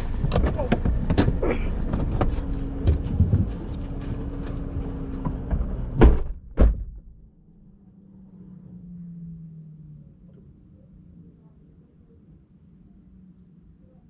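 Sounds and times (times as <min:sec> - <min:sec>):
car doors shutting: 0:00.0 - 0:07.2
rustling inside car: 0:00.0 - 0:07.2
low hum: 0:00.0 - 0:14.0.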